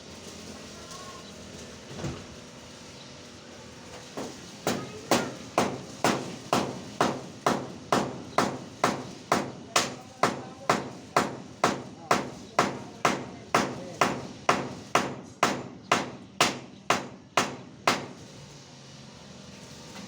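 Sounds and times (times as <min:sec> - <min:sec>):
hammer blows ringing: 0:04.2 - 0:18.2.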